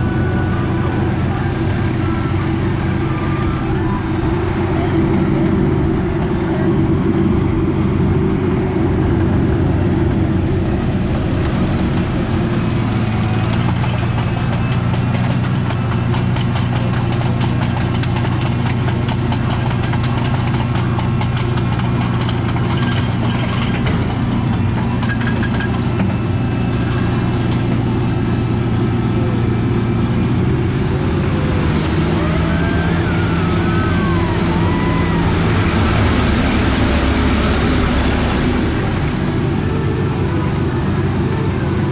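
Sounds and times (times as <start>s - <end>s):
ride train rumbling on track: 0.0s - 41.9s
faint squealing glides: 19.5s - 41.9s.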